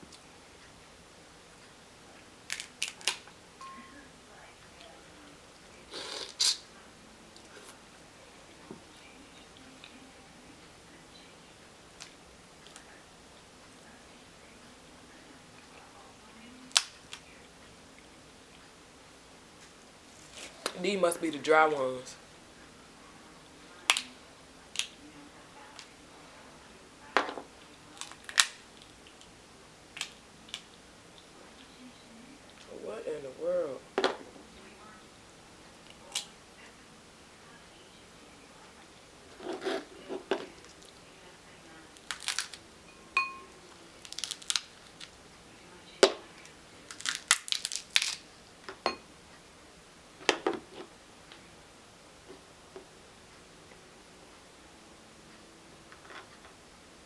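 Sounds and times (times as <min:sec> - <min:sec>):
crab shells cracking: 0:02.5 - 0:03.3, 0:28.0 - 0:29.3, 0:29.9 - 0:30.7, 0:42.0 - 0:42.6, 0:43.9 - 0:45.2, 0:46.9 - 0:48.3.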